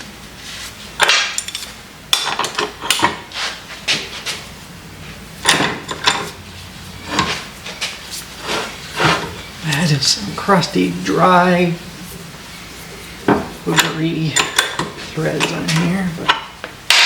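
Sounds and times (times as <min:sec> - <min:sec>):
metal clanking on metal: 0:05.4 - 0:06.4, 0:13.3 - 0:17.0.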